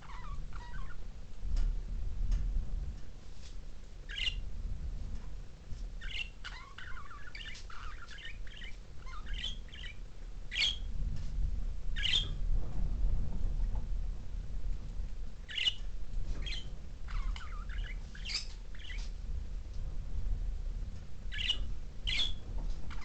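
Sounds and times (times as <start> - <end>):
budgerigars chirping: 0.0 - 1.0, 4.1 - 4.4, 6.0 - 10.9, 12.0 - 12.3, 15.5 - 15.8, 16.4 - 19.1, 21.3 - 23.0
low rumble: 0.0 - 23.0.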